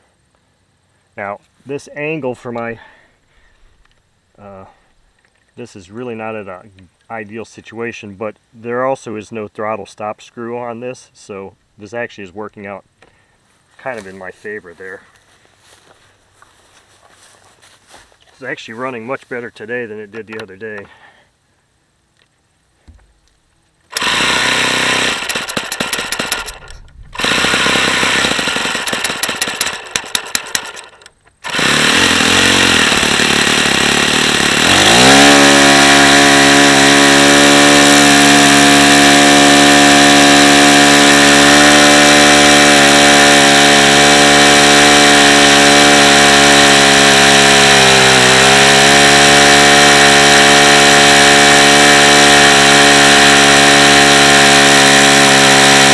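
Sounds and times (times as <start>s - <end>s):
model engine running: 23.9s - 55.9s.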